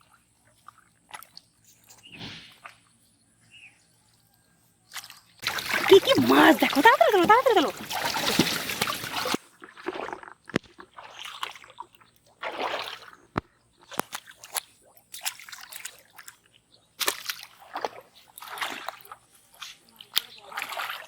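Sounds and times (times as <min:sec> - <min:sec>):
water splashing and sloshing: 0:04.9 - 0:21.0.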